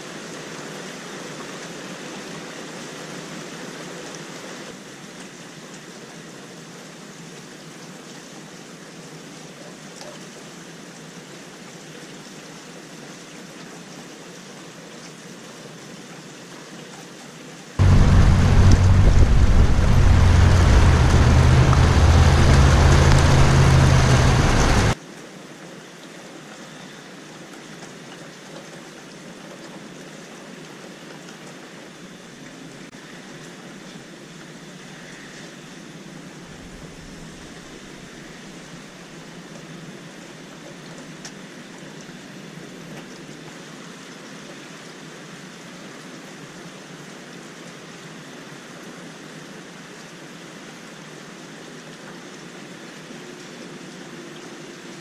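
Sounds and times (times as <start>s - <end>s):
deep rumbling noise: 17.8s - 25.0s
rain hissing: 17.8s - 25.0s.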